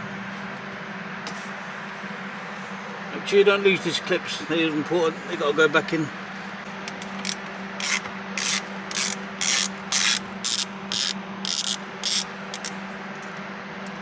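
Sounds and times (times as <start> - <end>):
socket ratchet clicking: 6.9 - 13.4.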